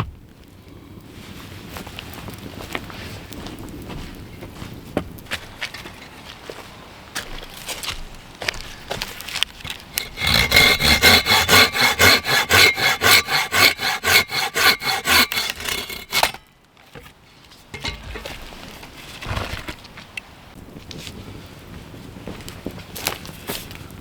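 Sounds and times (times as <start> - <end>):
hand saw cutting wood: 9.6 - 16.4.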